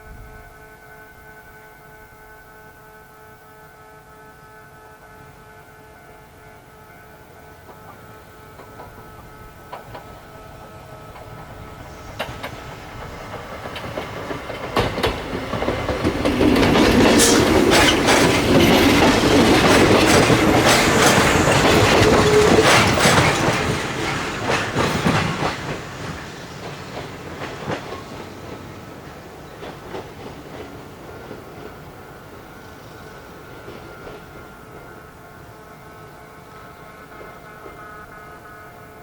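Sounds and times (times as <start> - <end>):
train wheels clacking over rail joints: 7.6 - 35.0.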